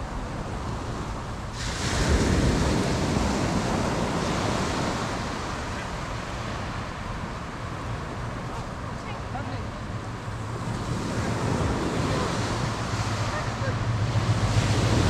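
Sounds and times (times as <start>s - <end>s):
ocean wave breaking: 0.0s - 15.0s
wind rumbling on microphone: 0.0s - 15.0s.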